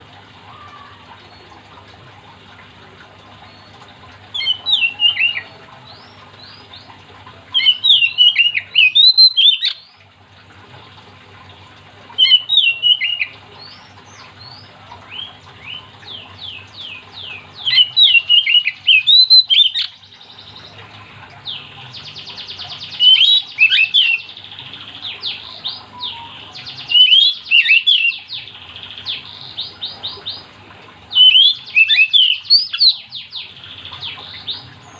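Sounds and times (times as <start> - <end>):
bird singing whistled phrases: 4.4 - 5.6, 7.5 - 9.9, 12.2 - 13.8, 15.1 - 20.0, 22.4 - 24.4, 25.1 - 28.5, 31.1 - 34.6.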